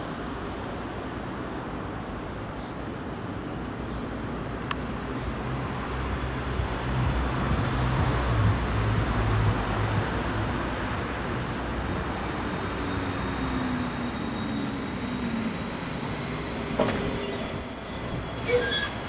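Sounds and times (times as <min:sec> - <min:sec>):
train wheels rumbling: 0:04.8 - 0:19.0.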